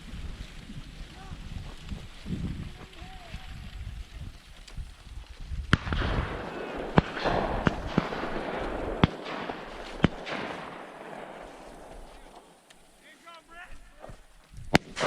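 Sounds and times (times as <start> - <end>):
shotgun shots with echo: 5.7 - 13.0, 14.7 - 15.0.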